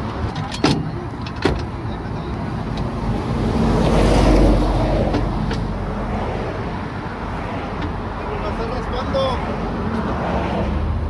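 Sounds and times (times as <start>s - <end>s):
vehicle engine revving: 2.2s - 7.5s.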